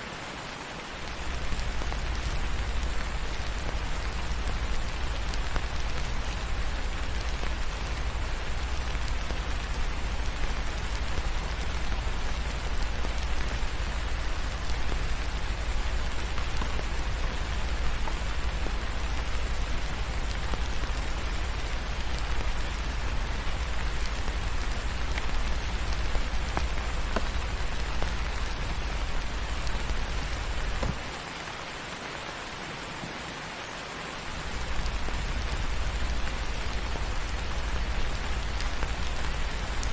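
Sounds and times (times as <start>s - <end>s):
steady rain hiss: 0.0s - 39.9s
faint clicks: 1.0s - 31.2s.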